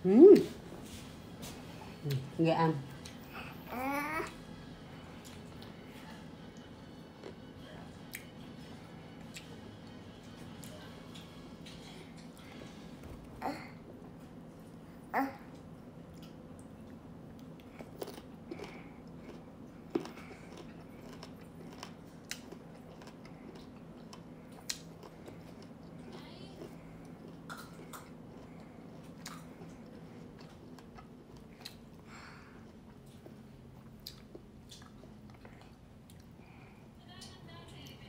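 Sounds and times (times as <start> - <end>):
steady low hum: 0.0 - 38.0
mango being bitten and chewed: 27.0 - 32.0.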